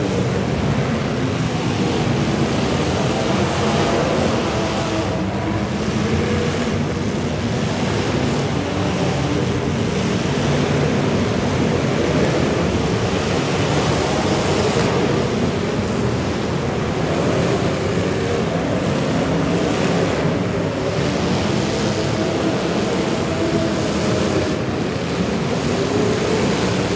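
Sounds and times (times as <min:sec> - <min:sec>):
car engines revving: 0:00.0 - 0:26.9.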